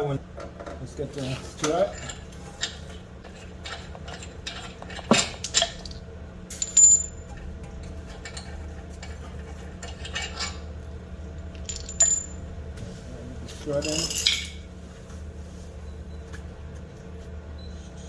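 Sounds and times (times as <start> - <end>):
metal tools clinking and knocking: 1.6 - 5.9, 8.1 - 10.7, 11.6 - 12.4, 13.7 - 14.6.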